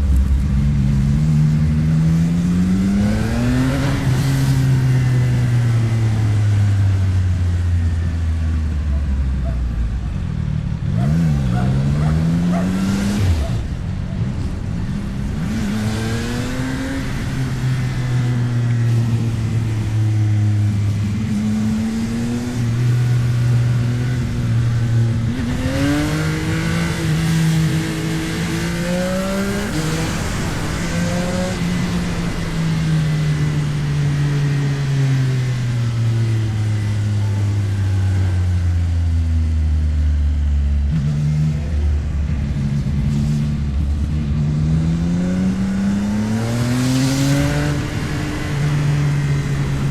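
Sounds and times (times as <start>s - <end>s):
motorcycle engine revving: 0.0s - 49.9s
wind rushing over microphone: 23.6s - 36.5s.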